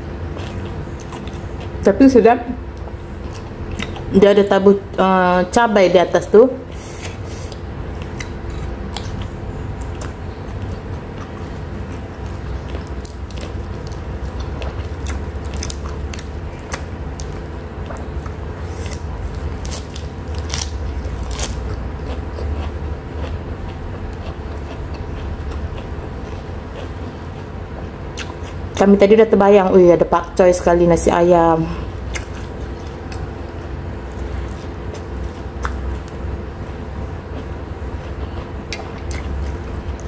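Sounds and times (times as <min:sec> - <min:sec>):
low hum: 0:00.0 - 0:40.0
chewing and wet mouth sounds: 0:00.2 - 0:01.9, 0:02.7 - 0:04.1, 0:06.9 - 0:28.9, 0:31.8 - 0:40.0.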